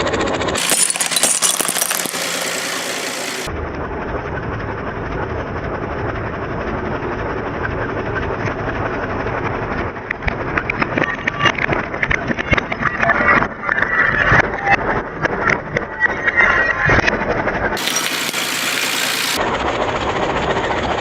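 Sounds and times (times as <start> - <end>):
objects cracking under tractor: 0.6 - 3.5, 17.8 - 19.4
tractor engine running: 0.6 - 3.5, 17.8 - 19.4.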